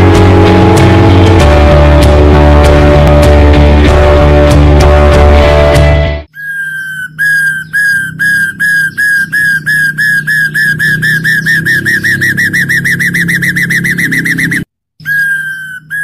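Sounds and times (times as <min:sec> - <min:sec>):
bird whistling short notes: 0:06.3 - 0:16.0.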